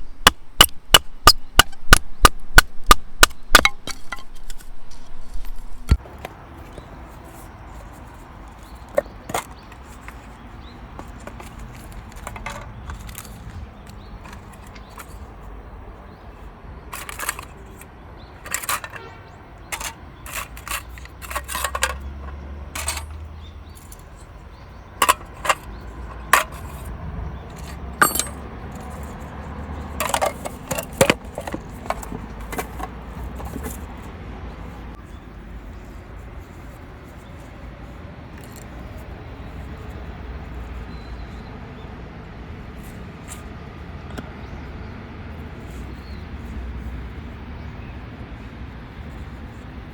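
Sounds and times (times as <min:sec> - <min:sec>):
metallic gear clinking: 0:19.7 - 0:24.4, 0:25.0 - 0:26.9, 0:27.5 - 0:29.2.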